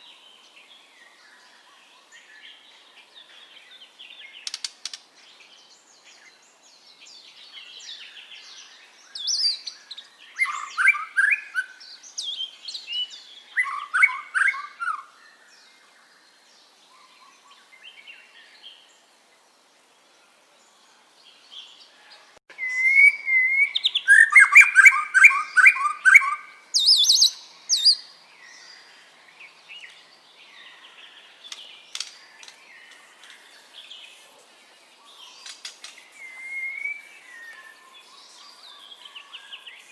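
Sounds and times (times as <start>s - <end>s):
bird singing varied phrases: 7.0s - 18.9s, 22.5s - 34.1s, 35.0s - 39.9s.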